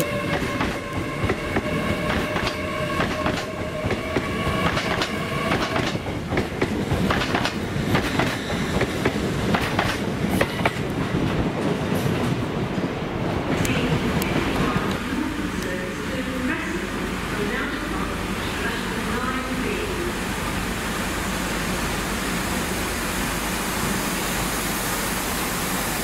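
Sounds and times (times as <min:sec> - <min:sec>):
train rumbling: 0:00.0 - 0:26.0
train whine: 0:00.0 - 0:26.0.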